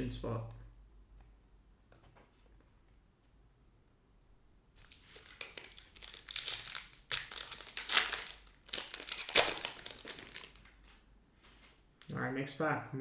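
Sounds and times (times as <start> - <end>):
foil wrapper crinkling and tearing: 4.8 - 11.0.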